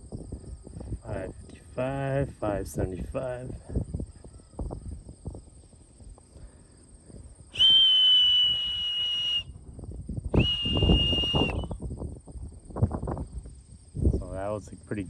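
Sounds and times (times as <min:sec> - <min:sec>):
person whistling high notes: 0:07.6 - 0:09.5, 0:10.4 - 0:11.8.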